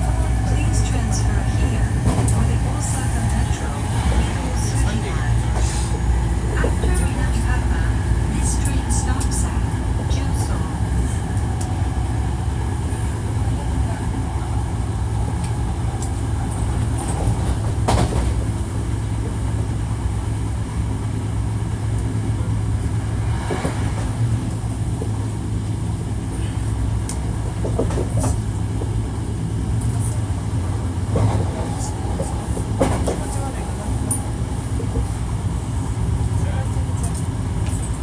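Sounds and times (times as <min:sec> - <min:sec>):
train running gear hum and rumble: 0:00.0 - 0:38.0.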